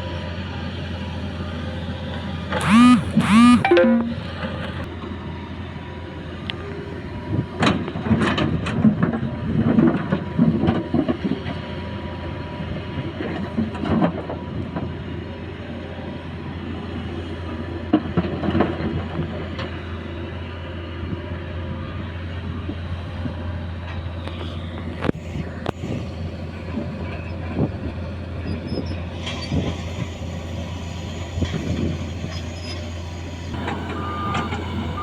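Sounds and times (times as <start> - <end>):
diesel engine running: 2.6 - 4.1, 32.9 - 35.0.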